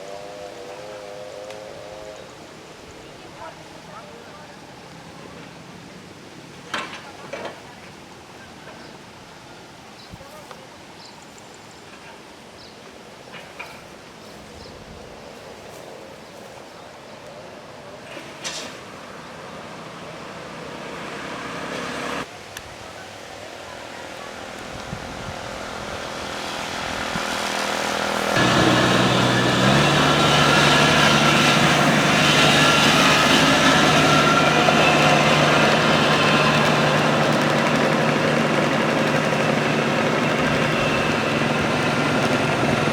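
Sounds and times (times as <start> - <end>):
combine harvester engine: 18.1 - 22.3, 23.8 - 42.9.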